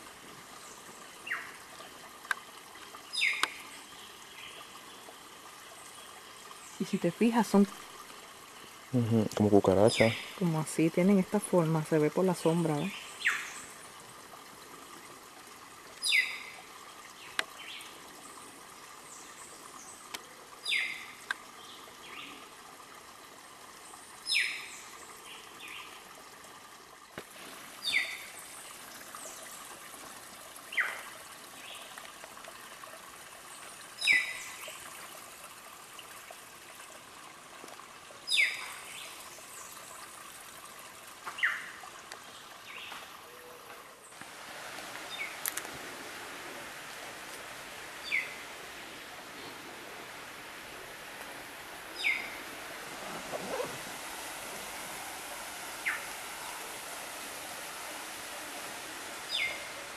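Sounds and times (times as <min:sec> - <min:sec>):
forest background: 0:00.0 - 0:59.9
bird calling: 0:16.0 - 0:16.6, 0:51.9 - 0:54.8.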